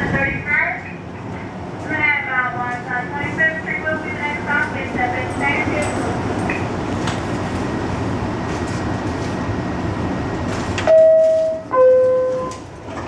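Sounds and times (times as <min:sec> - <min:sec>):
subway train rumbling: 0:00.0 - 0:13.0
two-note door chime: 0:10.9 - 0:12.6.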